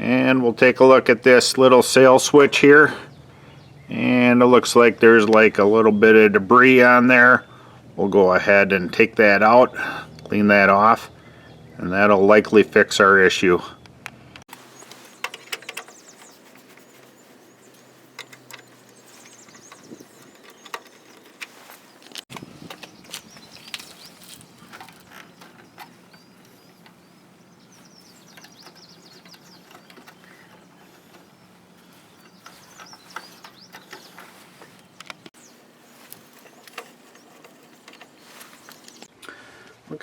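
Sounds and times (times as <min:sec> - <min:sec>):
faint bird chirps: 0:14.6 - 0:39.1.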